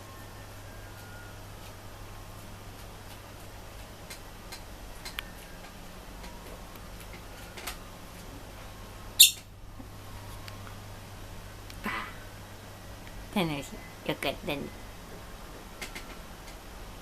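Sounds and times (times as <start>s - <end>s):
steady low hum: 0.0s - 17.0s
sharp high-pitched bird call: 9.2s - 9.5s.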